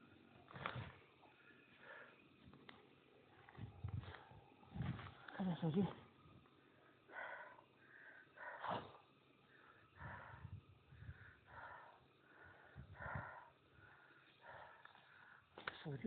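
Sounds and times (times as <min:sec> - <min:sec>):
heavy breathing: 0:00.5 - 0:02.4, 0:06.7 - 0:15.6.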